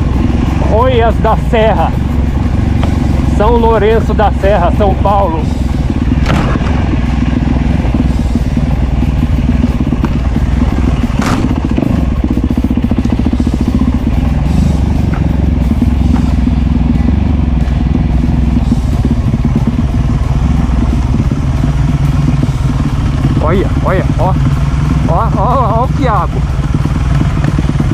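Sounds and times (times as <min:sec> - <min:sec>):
dirt bike engine running: 0:00.0 - 0:27.9
sharp knock: 0:06.2 - 0:06.9, 0:11.1 - 0:11.8.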